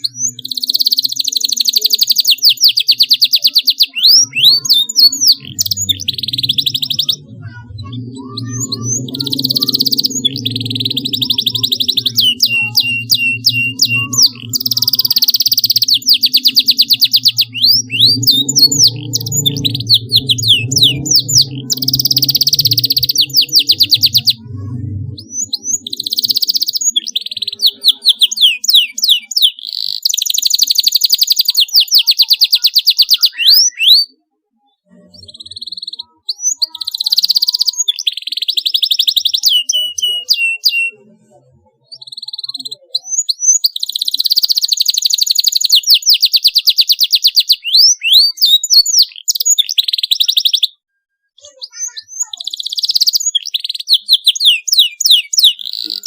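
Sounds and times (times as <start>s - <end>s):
canary singing: 0.0s - 50.8s, 51.4s - 56.0s.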